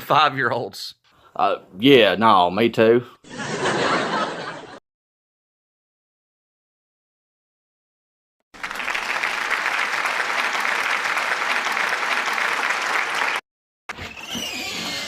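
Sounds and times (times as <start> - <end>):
audience applauding: 8.6 - 13.4.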